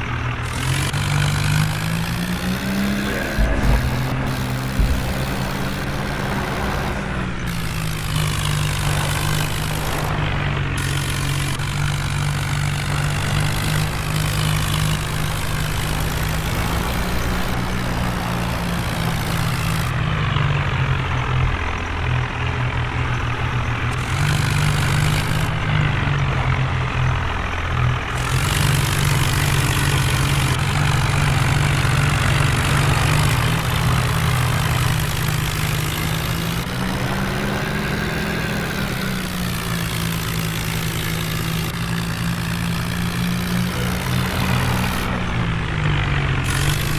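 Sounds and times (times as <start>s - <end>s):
heavy diesel engine running: 0.0s - 46.9s.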